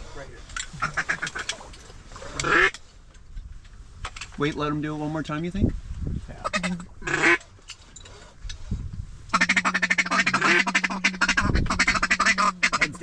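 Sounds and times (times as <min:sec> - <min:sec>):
duck call quacks: 0:00.8 - 0:01.5, 0:02.4 - 0:02.7, 0:06.4 - 0:07.4, 0:09.3 - 0:13.0.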